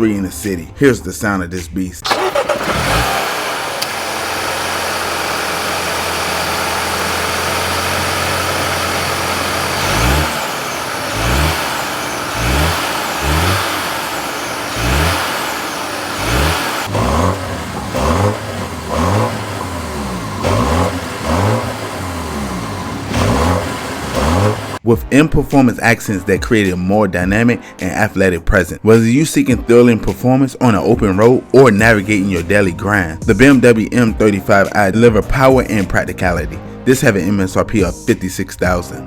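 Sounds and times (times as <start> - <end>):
car engine idling: 2.0 - 24.8
engine throttle blips: 2.0 - 24.8.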